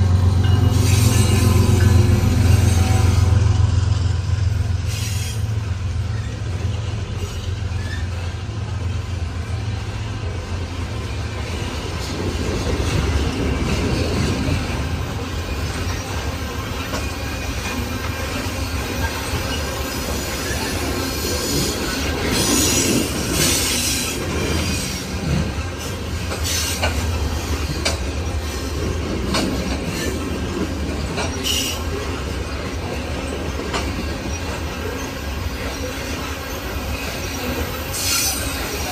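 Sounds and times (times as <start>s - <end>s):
freight train rumbling past: 0.0s - 38.9s
high wheel squeal: 0.4s - 3.6s, 4.8s - 6.6s, 7.2s - 8.4s, 13.1s - 29.1s, 31.0s - 38.9s
wheels clicking over rail joints: 15.6s - 36.4s.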